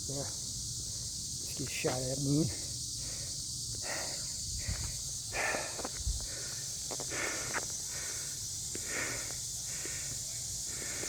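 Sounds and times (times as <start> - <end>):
cicadas chorus: 0.0 - 11.0
man breathing heavily: 2.5 - 11.0.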